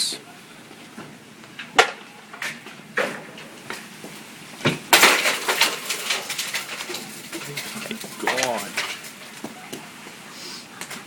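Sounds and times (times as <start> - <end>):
hailstones striking hard surfaces: 1.8 - 10.1.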